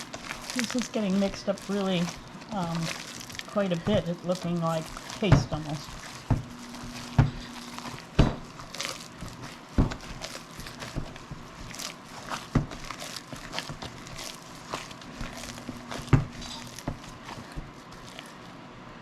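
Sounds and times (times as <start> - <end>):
hands kneading meat: 0.0 - 18.7.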